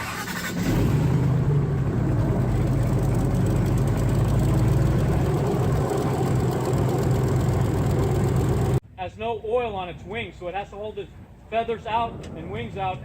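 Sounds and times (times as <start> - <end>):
airboat engine and propeller drone: 0.6 - 8.8.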